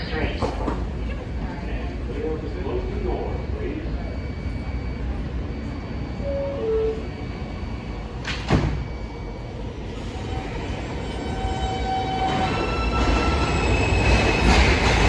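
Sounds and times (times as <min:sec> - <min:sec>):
subway door chime: 0:04.0 - 0:15.0.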